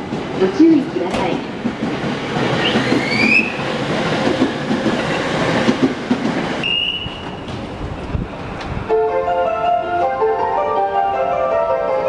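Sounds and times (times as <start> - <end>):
rail clatter: 0.0 - 11.1
electric train rumbling: 0.0 - 12.0
high squeals: 6.6 - 7.5.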